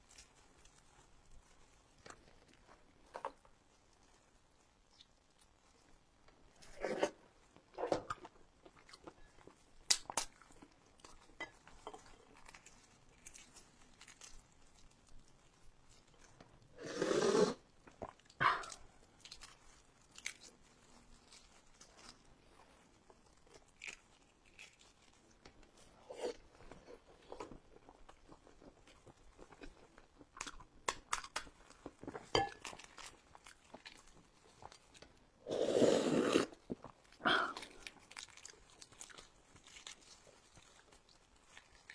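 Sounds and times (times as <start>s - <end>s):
crunching and chewing: 0.0s - 16.7s, 17.6s - 41.9s.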